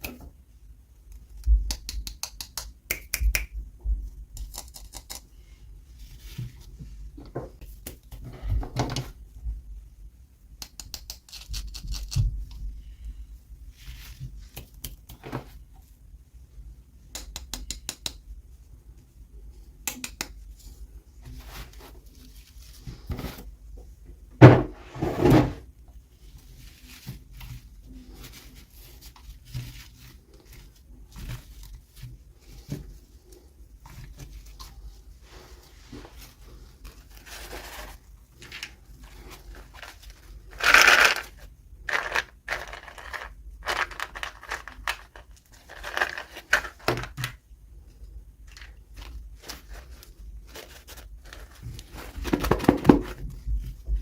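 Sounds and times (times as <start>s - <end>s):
packaging rustling and crinkling: 35.9s - 47.4s, 48.5s - 54.0s.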